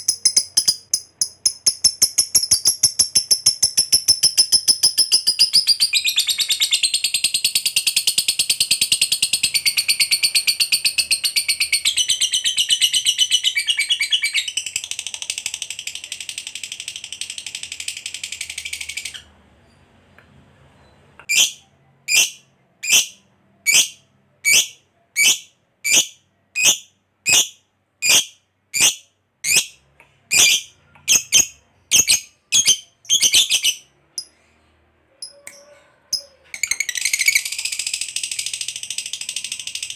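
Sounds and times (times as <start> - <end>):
bird high-pitched rattling trill: 0.0 - 6.1, 36.6 - 39.9.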